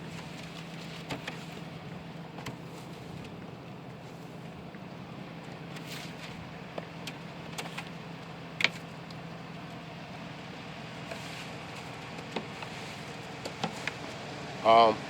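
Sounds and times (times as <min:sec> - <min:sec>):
ice tapped and scraped off wipers: 0:00.0 - 0:01.8, 0:05.7 - 0:09.8, 0:11.0 - 0:14.2.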